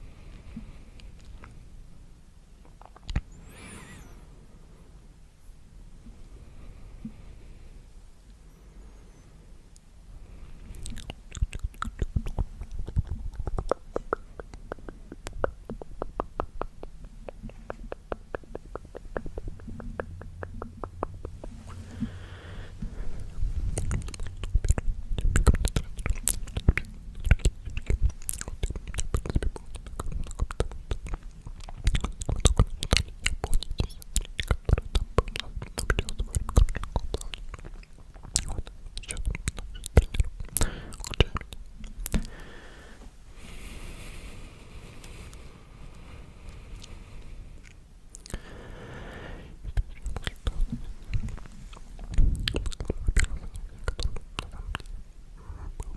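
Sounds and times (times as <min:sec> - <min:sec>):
wet mouth clicks: 0:01.0 - 0:01.6, 0:02.6 - 0:04.1, 0:10.7 - 0:43.0, 0:47.6 - 0:55.0, 0:55.6 - 0:55.9.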